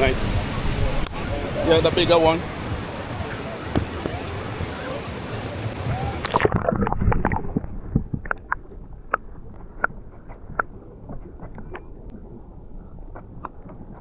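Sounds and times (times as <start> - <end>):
low underwater rumble: 5.8 - 14.0
bubbly clicks and pops: 6.2 - 12.2.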